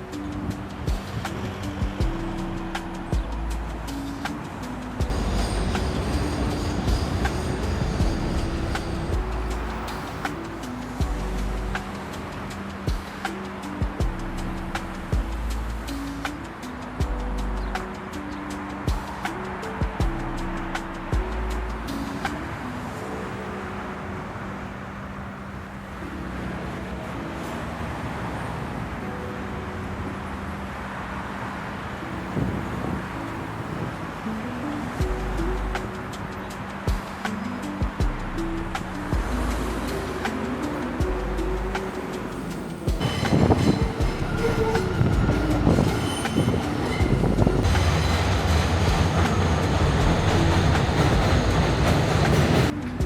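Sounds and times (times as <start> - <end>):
road noise: 0.0 - 53.0
vehicle engines humming: 0.0 - 53.0
train wheels clattering on rails: 5.0 - 11.1, 42.9 - 52.7
thin wheel squeals: 41.9 - 48.6.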